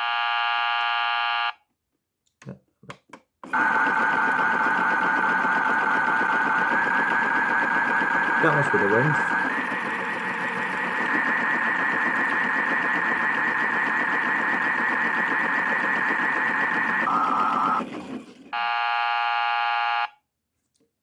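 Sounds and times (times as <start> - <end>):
toy motor whirring: 3.5 - 18.6.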